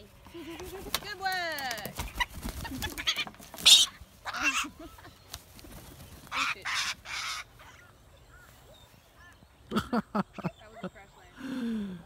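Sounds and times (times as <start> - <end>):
parrots screeching: 2.9 - 4.9, 6.3 - 7.9.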